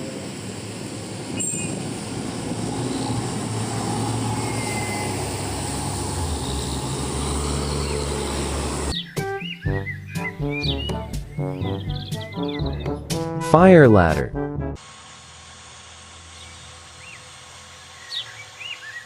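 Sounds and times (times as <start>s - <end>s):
diesel truck engine running: 0.0s - 8.9s, 13.6s - 19.0s.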